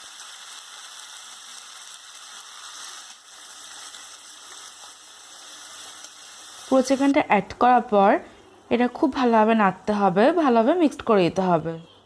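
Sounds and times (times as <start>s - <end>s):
oil sizzling: 0.0s - 7.9s.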